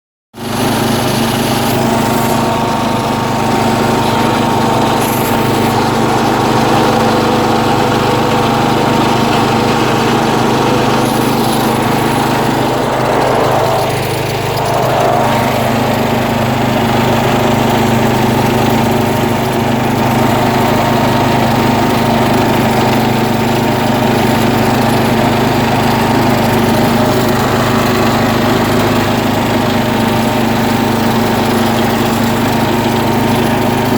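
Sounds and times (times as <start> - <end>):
tractor engine running under load: 0.4 - 33.9.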